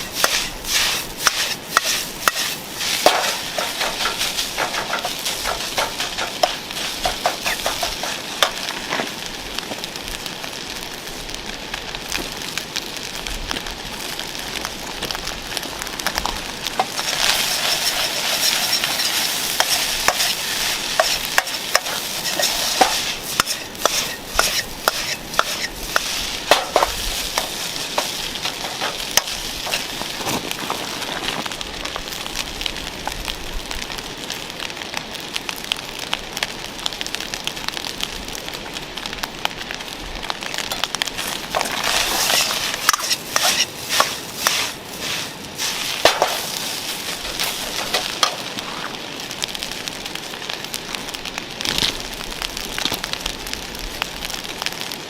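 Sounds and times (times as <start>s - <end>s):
spoon scraping a pan: 0.0s - 8.7s, 16.8s - 29.9s, 41.2s - 48.4s
fire crackling and popping: 0.0s - 55.0s
rice sizzling in a pan: 0.0s - 55.0s.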